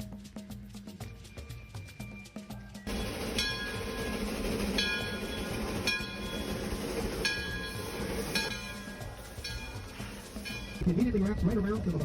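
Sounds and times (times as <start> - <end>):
steam train rumbling on rails: 2.8 - 12.0
bright ringing note: 2.9 - 10.8.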